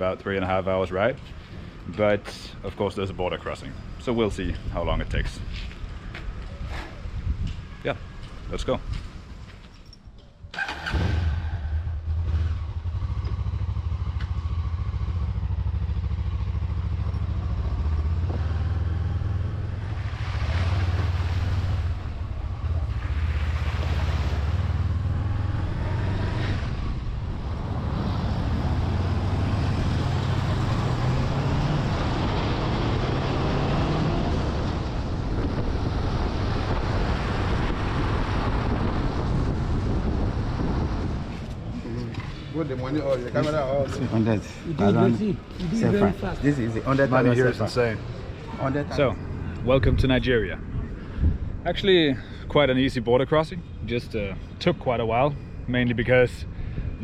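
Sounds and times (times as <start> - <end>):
motorcycle engine running: 12.1 - 19.9
wind rush: 19.7 - 42.6, 49.3 - 51.7.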